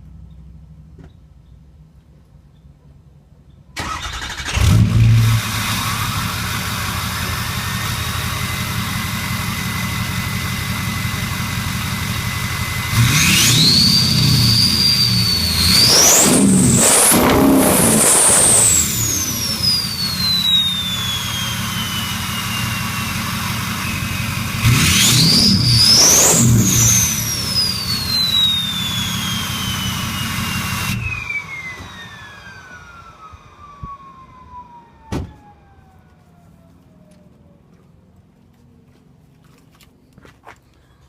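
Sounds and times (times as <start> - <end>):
diesel engine revving: 3.8 - 34.0
turbo whistling and whining down: 12.1 - 37.3.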